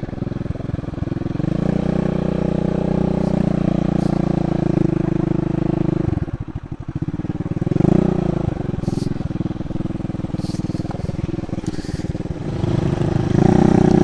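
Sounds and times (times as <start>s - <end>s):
small motorbike engine: 0.0s - 14.0s.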